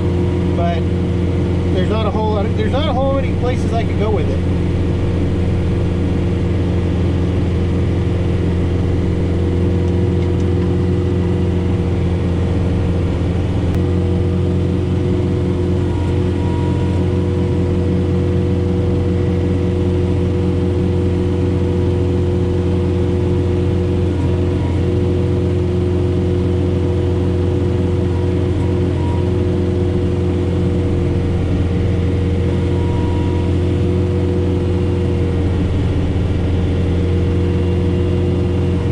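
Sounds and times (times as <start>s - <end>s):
snowblower hum and whir: 0.0s - 38.9s
tractor diesel engine running: 0.0s - 38.9s.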